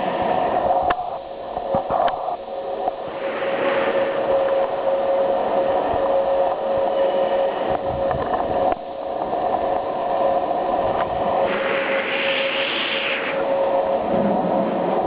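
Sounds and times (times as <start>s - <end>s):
mechanical hum: 0.0s - 15.0s
hiss: 3.0s - 4.4s, 11.4s - 14.8s.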